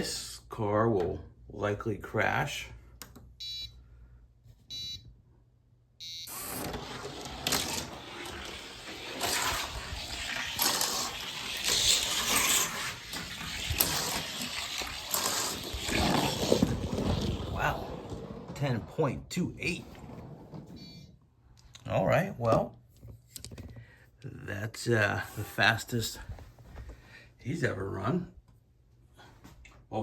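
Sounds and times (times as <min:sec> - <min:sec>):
short electronic beeps: 0:03.4 - 0:03.7, 0:04.7 - 0:05.0, 0:06.0 - 0:06.4
toy car rolling down track: 0:06.3 - 0:19.0.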